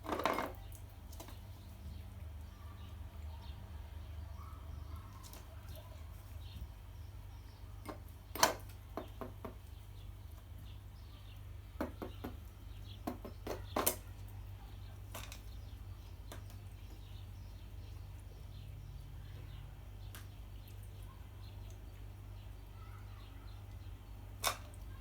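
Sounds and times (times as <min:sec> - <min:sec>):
beak tapping a dish: 0:07.8 - 0:09.7, 0:11.8 - 0:14.0.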